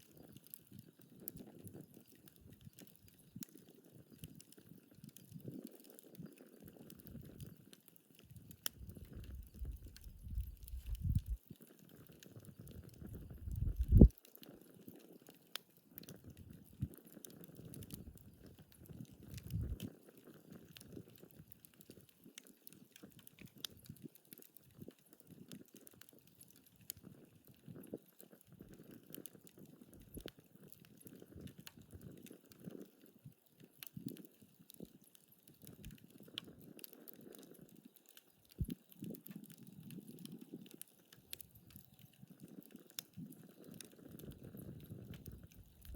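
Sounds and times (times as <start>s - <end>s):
sharp pops from fire: 0.0s - 32.9s, 33.7s - 45.9s
wood fire crackling: 0.0s - 45.9s
soft low rumbling: 8.8s - 11.4s, 13.1s - 14.1s.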